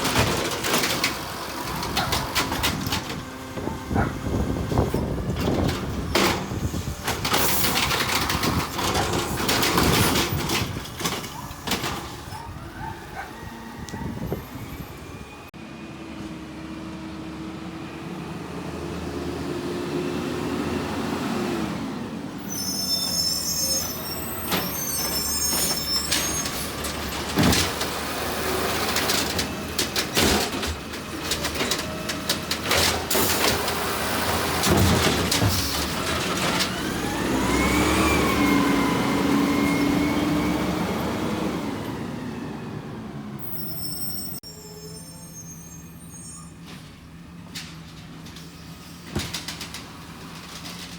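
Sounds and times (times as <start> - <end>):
garbage truck running: 0.0 - 50.9
high squeals: 22.4 - 26.8, 43.4 - 46.6.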